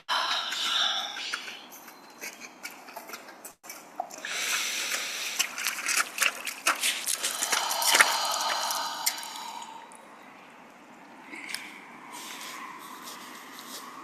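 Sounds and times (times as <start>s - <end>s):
running water with drips: 3.7s - 11.7s.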